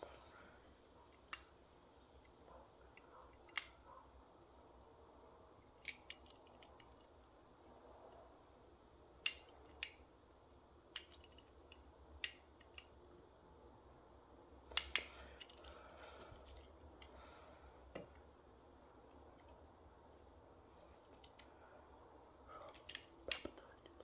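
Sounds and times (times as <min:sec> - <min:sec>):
toy truck parts clicking: 0:01.1 - 0:01.6, 0:02.2 - 0:03.8, 0:05.7 - 0:07.1, 0:09.2 - 0:10.1, 0:10.9 - 0:13.0, 0:14.7 - 0:17.2, 0:21.1 - 0:21.5, 0:22.6 - 0:23.8.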